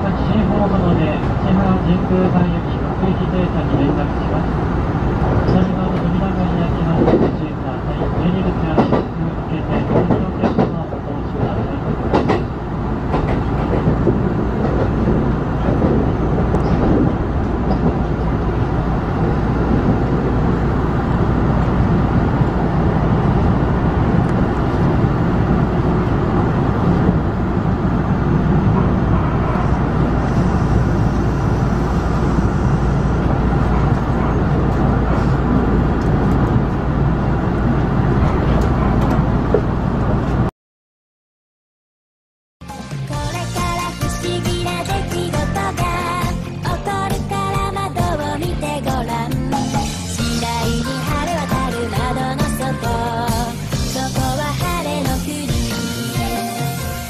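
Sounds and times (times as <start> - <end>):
train wheels rumbling on rail: 0.0 - 40.5, 42.8 - 57.0.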